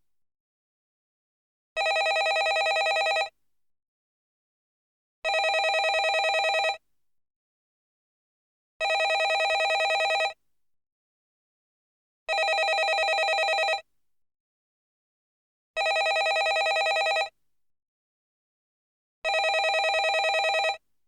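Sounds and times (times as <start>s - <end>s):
telephone bell ringing: 1.8s - 3.3s, 5.3s - 6.8s, 8.8s - 10.4s, 12.3s - 13.8s, 15.8s - 17.3s, 19.3s - 20.8s.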